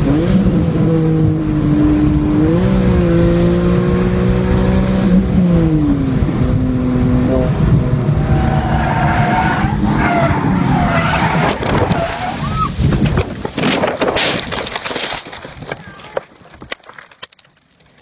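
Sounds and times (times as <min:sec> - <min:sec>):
tyres squealing in a skid: 0:08.2 - 0:12.9
car crashing and scraping: 0:08.3 - 0:17.4
debris clattering: 0:12.9 - 0:18.0.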